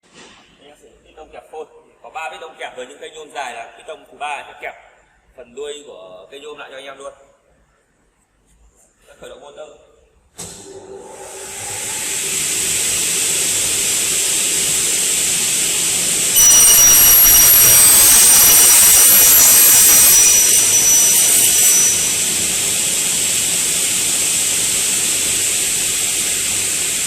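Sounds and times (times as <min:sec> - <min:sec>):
cutting saw motor whining: 0:12.8 - 0:27.0
saw blades cutting metal: 0:16.4 - 0:27.0.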